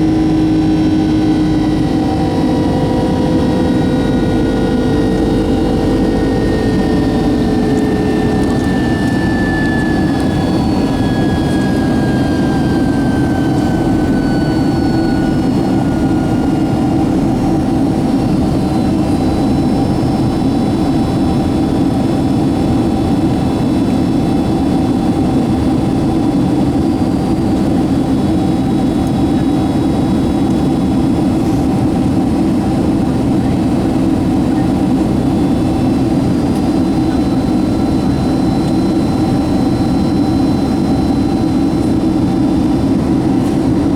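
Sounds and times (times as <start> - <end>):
faint falling whine: 0.0 - 17.6
jet engines roaring: 0.0 - 43.9.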